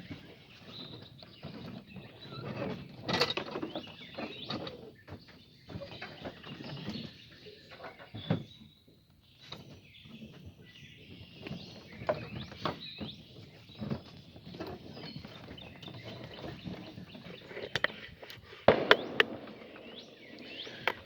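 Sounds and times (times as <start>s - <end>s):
birds chirping faintly: 0.0s - 21.0s
sharp clicks: 18.7s - 21.0s.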